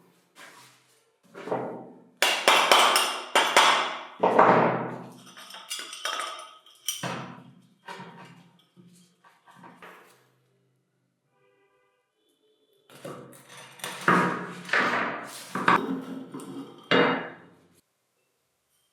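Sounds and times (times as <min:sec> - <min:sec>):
hammer striking metal: 0:02.2 - 0:04.1.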